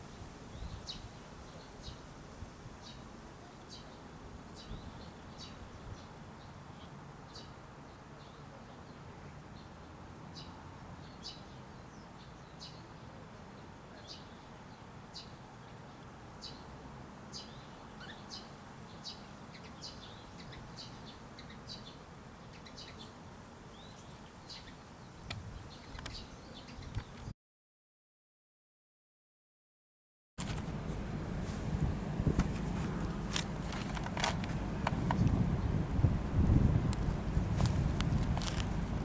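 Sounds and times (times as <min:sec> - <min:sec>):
small birds chirping: 0:00.1 - 0:02.1, 0:02.8 - 0:16.7, 0:17.3 - 0:27.3
low rumbles: 0:30.4 - 0:39.0.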